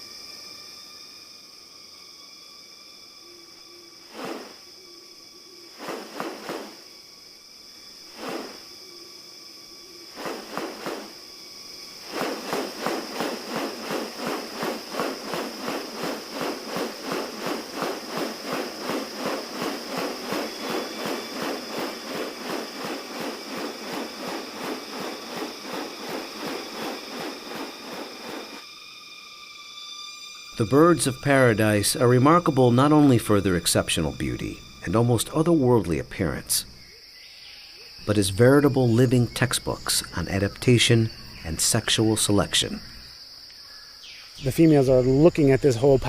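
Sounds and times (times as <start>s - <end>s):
insects droning: 0.0s - 46.0s
fast rustling pulse: 4.1s - 4.6s, 5.8s - 6.8s, 8.2s - 8.7s, 10.1s - 11.2s, 12.0s - 28.6s
rustling bursts: 5.8s - 6.8s, 8.2s - 8.7s, 10.1s - 11.2s, 12.0s - 28.6s.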